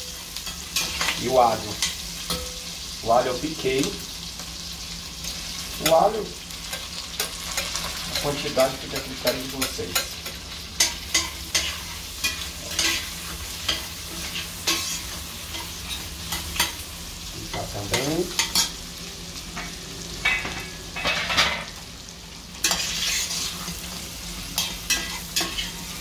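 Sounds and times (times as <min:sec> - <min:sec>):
meat sizzling in a pot: 0:00.0 - 0:26.0
metal spoon scraping a pot: 0:10.8 - 0:13.1, 0:22.6 - 0:23.7.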